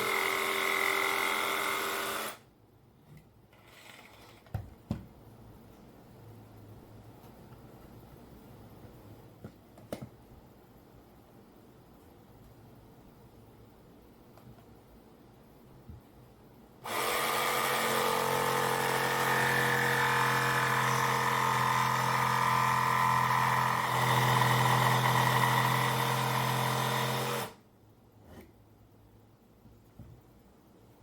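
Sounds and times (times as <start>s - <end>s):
jigsaw cutting wood: 0.0s - 2.4s, 16.8s - 27.6s.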